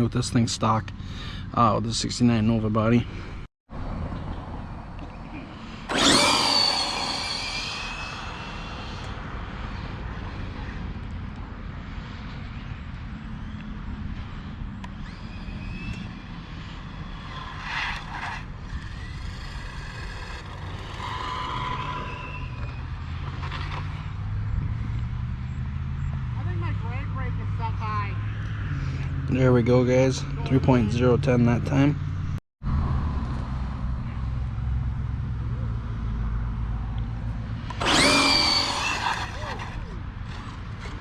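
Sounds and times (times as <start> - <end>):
electric motor high-pitched whine: 5.8 - 9.5, 14.8 - 23.0, 37.7 - 41.0.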